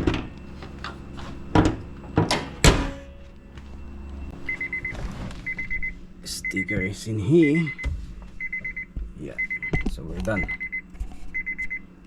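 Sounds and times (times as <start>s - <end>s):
car bonnet thudding shut: 1.5s - 3.2s
electronic beeping: 3.0s - 11.9s.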